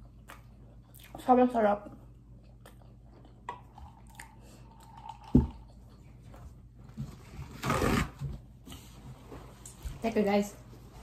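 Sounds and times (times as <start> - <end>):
person chewing: 0.0 - 1.3, 2.0 - 6.4.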